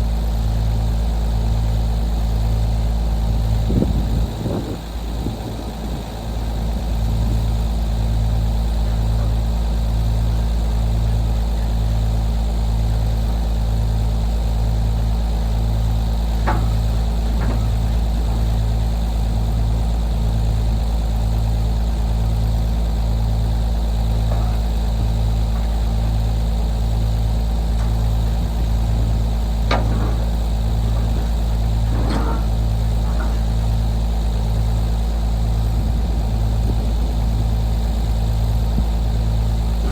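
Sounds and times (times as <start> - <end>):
vehicle engine droning: 0.0 - 39.9
faint knocks: 16.4 - 18.7, 29.6 - 33.8.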